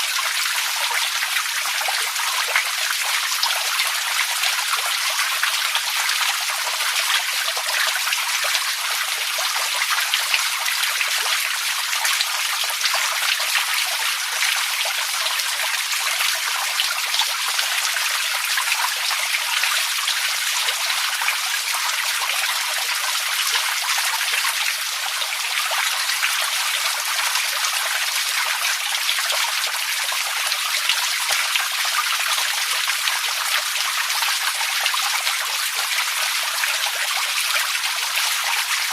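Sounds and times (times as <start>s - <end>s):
water trickling and splashing: 0.0s - 38.9s.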